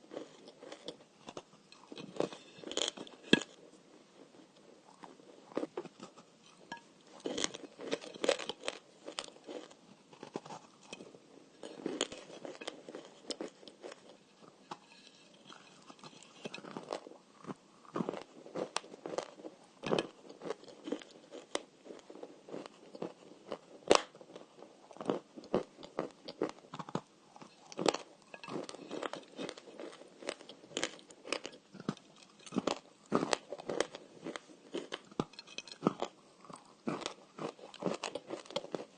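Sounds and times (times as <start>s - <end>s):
crunchy clay being chewed: 0.0s - 38.9s.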